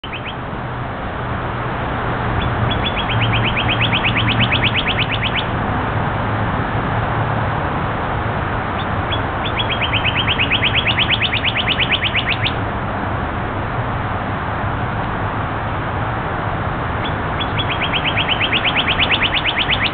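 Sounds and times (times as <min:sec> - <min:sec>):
songbird trilling: 0:00.0 - 0:00.4, 0:02.4 - 0:05.5, 0:08.8 - 0:12.6, 0:17.0 - 0:19.9.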